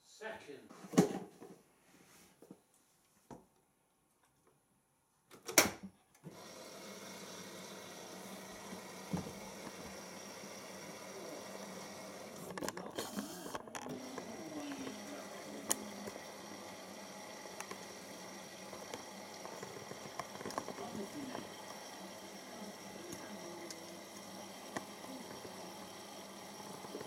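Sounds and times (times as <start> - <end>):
water running into washing machine drum: 6.3 - 12.5, 13.8 - 27.0.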